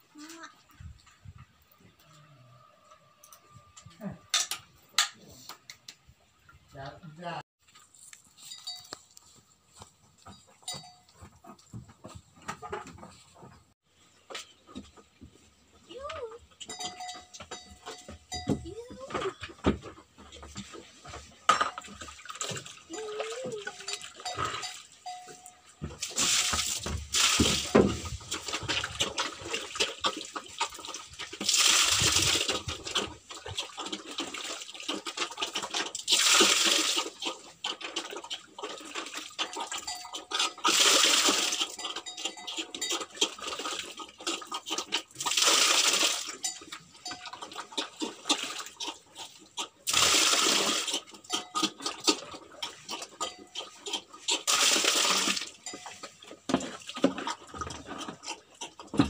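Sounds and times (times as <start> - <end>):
pig chewing and smacking: 18.7 - 59.0
pig slurping: 20.4 - 25.0, 26.0 - 59.0.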